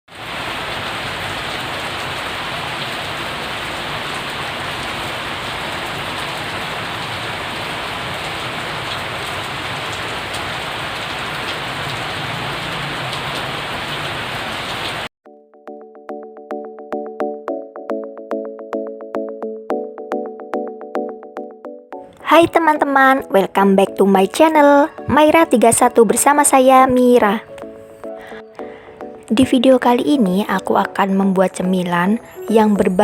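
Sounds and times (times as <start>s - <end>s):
steady rain: 0.1s - 15.1s
plucked background music: 15.3s - 33.0s.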